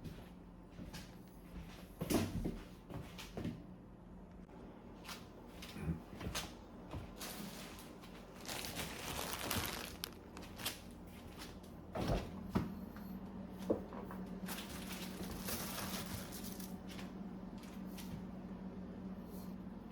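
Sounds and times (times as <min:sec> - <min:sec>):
rustling: 0:07.2 - 0:11.5, 0:14.5 - 0:16.8.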